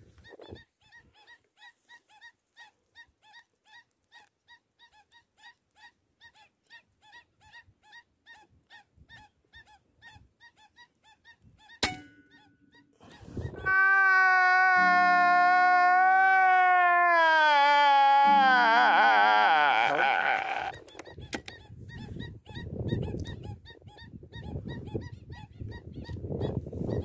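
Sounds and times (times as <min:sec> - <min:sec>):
sharp crack: 0:11.8 - 0:12.2.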